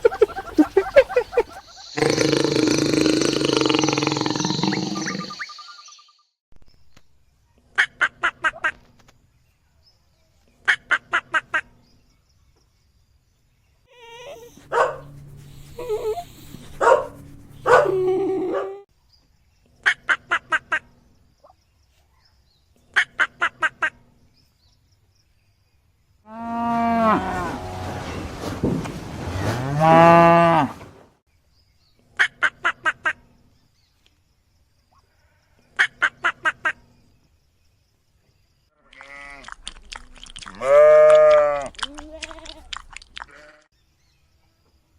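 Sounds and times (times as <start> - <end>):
animal calls: 0.0 - 5.8, 13.9 - 18.8
cow mooing: 26.3 - 28.1.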